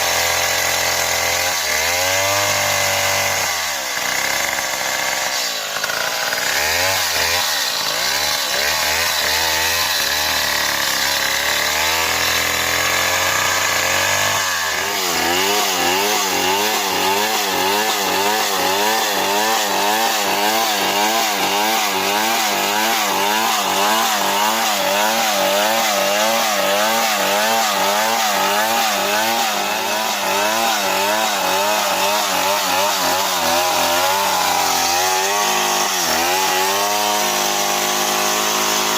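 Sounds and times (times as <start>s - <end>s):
chainsaw running hard: 0.0s - 38.9s.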